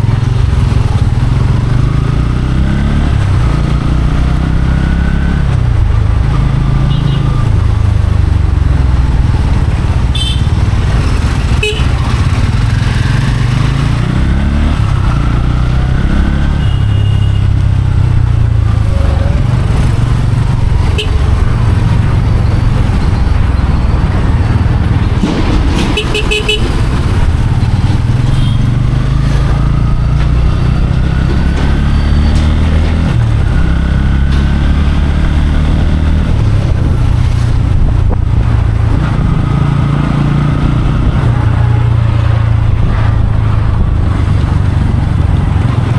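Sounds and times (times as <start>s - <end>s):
motorcycle engine rumble: 0.0s - 45.9s
car horns honking: 6.9s - 7.4s, 10.1s - 10.6s, 11.5s - 12.1s, 16.5s - 17.6s, 20.8s - 21.4s, 25.9s - 26.9s, 28.2s - 28.8s.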